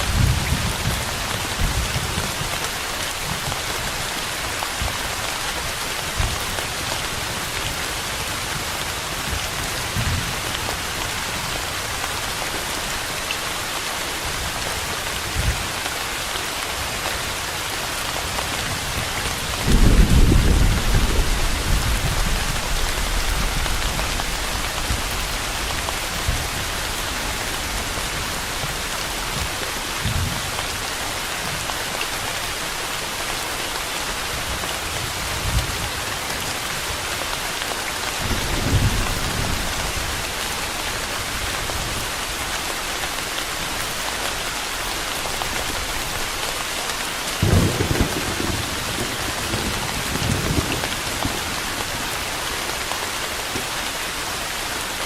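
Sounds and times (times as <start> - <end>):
steady rain hiss: 0.0 - 55.0
roll of thunder: 19.6 - 25.0.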